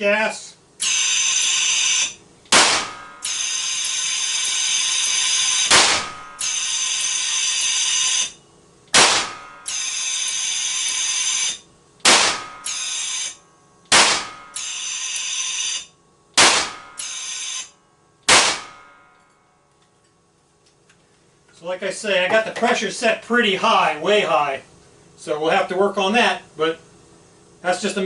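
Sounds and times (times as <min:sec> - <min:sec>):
buzzing tone: 0:00.8 - 0:20.3
gas gun loud bangs: 0:02.5 - 0:03.3, 0:05.7 - 0:06.5, 0:08.9 - 0:09.7, 0:12.0 - 0:12.7, 0:13.9 - 0:14.6, 0:16.4 - 0:17.0, 0:18.3 - 0:18.9.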